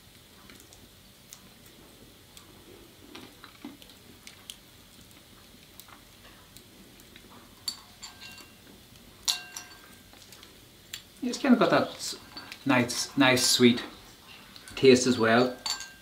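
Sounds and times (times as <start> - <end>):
sharp ringing clinks: 9.3 - 10.0, 15.6 - 16.0.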